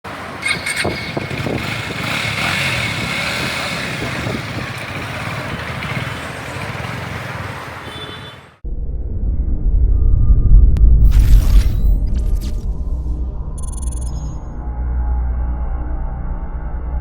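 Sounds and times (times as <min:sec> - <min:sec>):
motorcycle engine running: 0:00.4 - 0:08.1.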